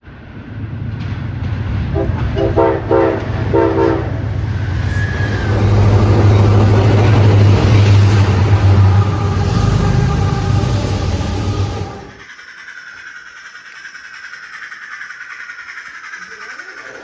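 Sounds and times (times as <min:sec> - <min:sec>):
low motor hum: 0:00.2 - 0:12.2
train horn toots: 0:01.9 - 0:12.2.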